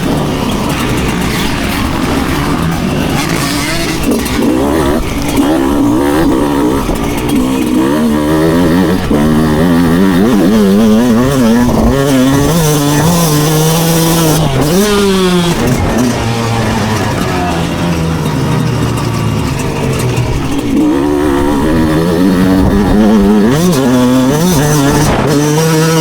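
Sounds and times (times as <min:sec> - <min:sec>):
motocross bike engine revving: 0:00.0 - 0:26.0
steady engine note: 0:00.0 - 0:26.0.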